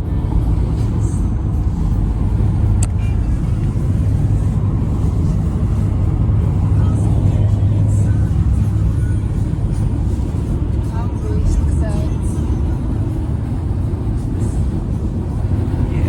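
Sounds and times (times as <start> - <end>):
car cabin road and engine drone: 0.0 - 16.0.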